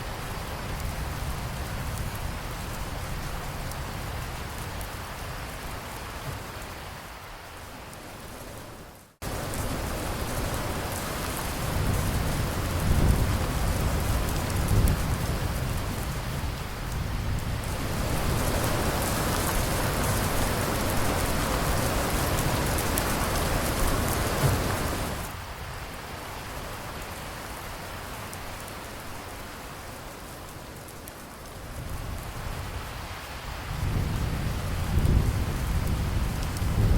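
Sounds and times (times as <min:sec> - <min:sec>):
steady rain hiss: 0:00.0 - 0:36.9
low rumble of thunder: 0:09.3 - 0:25.3, 0:31.5 - 0:36.9.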